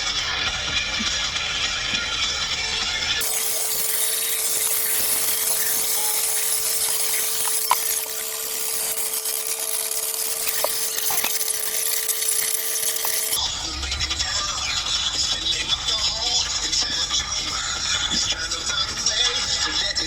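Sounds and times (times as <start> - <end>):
power tool whining: 1.4 - 13.4
hiss: 3.2 - 13.4.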